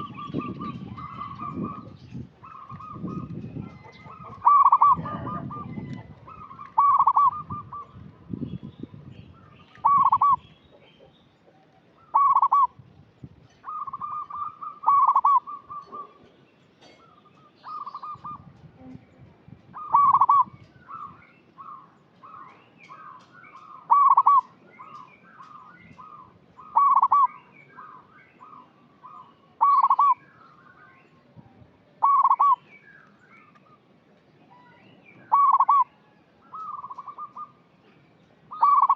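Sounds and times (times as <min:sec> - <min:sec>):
dove cooing: 0:00.0 - 0:08.0, 0:09.8 - 0:10.4, 0:12.0 - 0:12.8, 0:13.6 - 0:16.2, 0:19.8 - 0:25.0, 0:26.0 - 0:30.2, 0:32.0 - 0:32.6, 0:35.3 - 0:37.6, 0:38.5 - 0:38.9
faint bird chirps: 0:19.8 - 0:31.4, 0:32.0 - 0:38.9.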